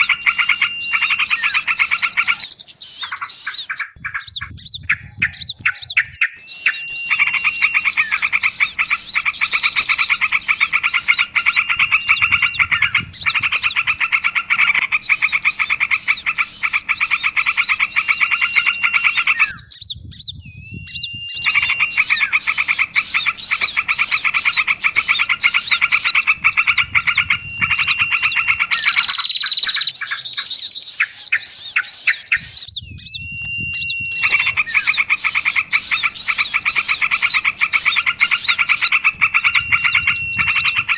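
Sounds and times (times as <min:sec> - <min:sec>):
songbirds chirping and trilling: 0:00.0 - 0:40.9
held whistle note: 0:32.8 - 0:34.9.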